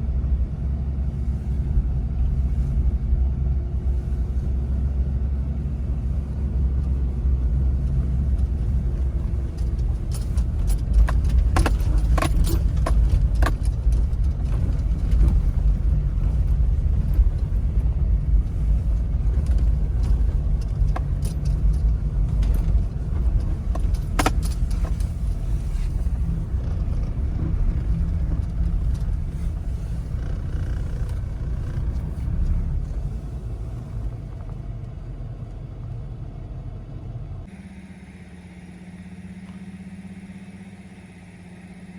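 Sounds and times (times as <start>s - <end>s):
vehicle engine and road rumble: 0.0s - 41.9s
metallic jingling: 8.7s - 17.8s, 18.5s - 26.6s.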